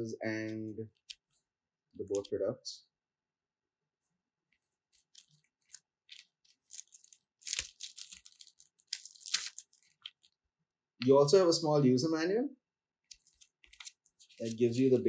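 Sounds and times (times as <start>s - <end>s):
paper and packaging crinkling: 4.6s - 10.4s, 13.1s - 15.0s.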